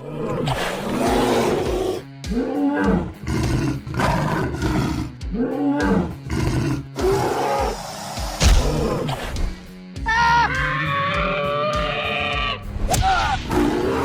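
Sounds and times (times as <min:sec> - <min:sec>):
creature roaring: 0:13.2 - 0:14.0.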